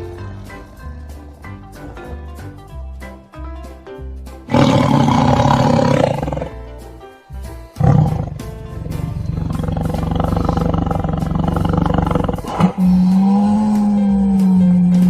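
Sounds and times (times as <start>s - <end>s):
light background music: 0.0s - 15.0s
tiger roaring: 4.5s - 6.6s, 7.8s - 15.0s.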